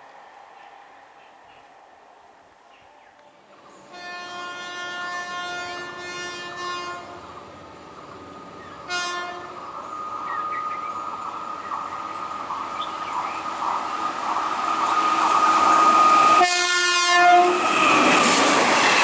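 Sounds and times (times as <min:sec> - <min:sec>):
train rumbling: 0:00.0 - 0:19.0
train horn blasts: 0:03.8 - 0:07.2, 0:08.8 - 0:09.6, 0:16.2 - 0:17.7.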